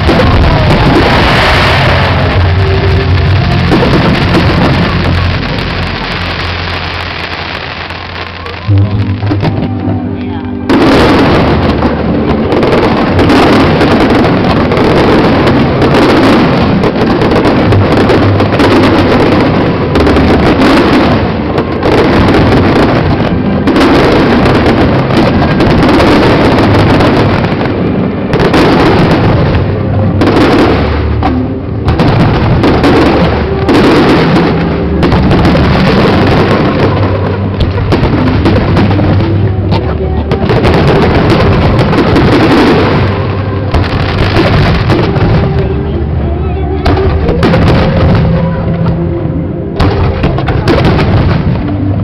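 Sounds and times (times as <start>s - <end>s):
fireworks bangs and crackles: 0.0s - 52.0s.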